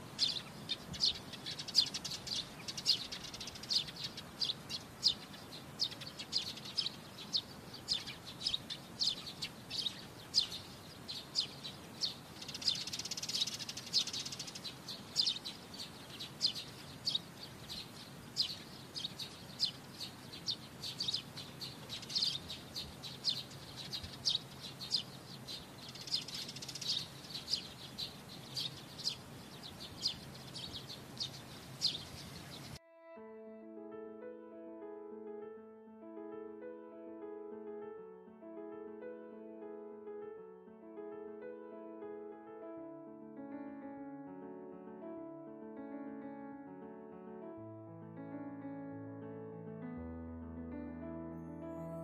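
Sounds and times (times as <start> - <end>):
small birds chirping: 0.0 - 32.8.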